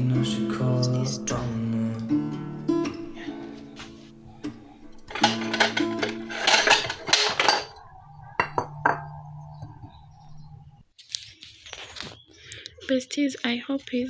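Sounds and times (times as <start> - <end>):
song with guitar: 0.0 - 6.3
dishes clinking and clattering: 3.8 - 10.5.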